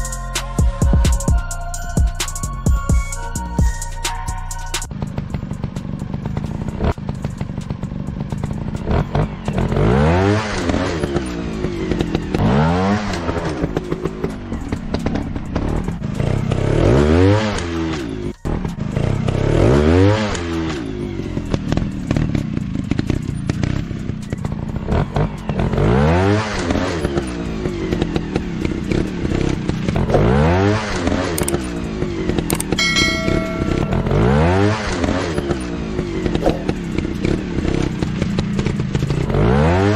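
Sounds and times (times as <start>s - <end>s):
motorcycle engine revving: 2.5s - 39.9s
engine clatter: 4.5s - 39.9s.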